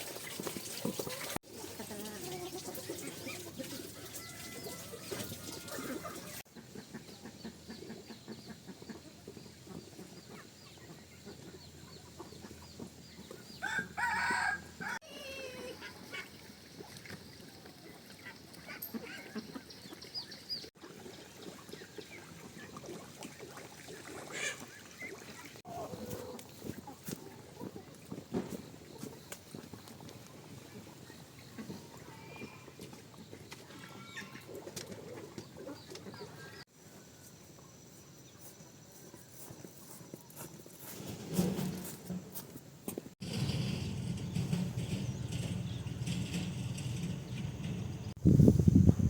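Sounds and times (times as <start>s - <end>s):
chickens clucking: 0.9s - 13.5s, 24.3s - 32.2s, 33.6s - 36.6s
rooster crowing: 4.1s - 5.9s, 13.6s - 15.2s.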